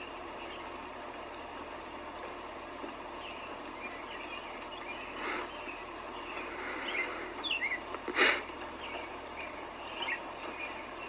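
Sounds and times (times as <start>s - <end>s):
birds chirping: 0.0s - 11.0s
rain hissing: 4.6s - 9.8s.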